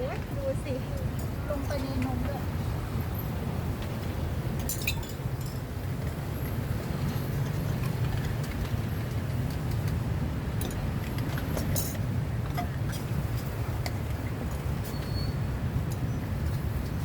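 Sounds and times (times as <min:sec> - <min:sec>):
road traffic rumble: 0:00.0 - 0:17.0
faint light clicks and clinks: 0:04.6 - 0:05.6.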